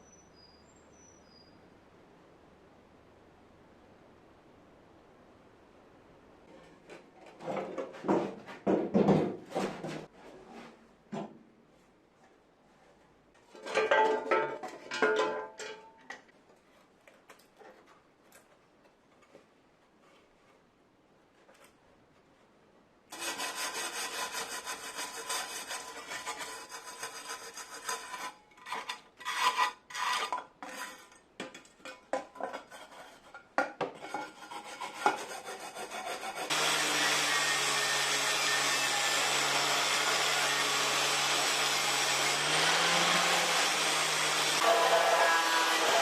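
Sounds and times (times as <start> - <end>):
scraping on a hard surface: 6.5 - 10.9, 23.1 - 36.6
power tool running: 36.5 - 46.0.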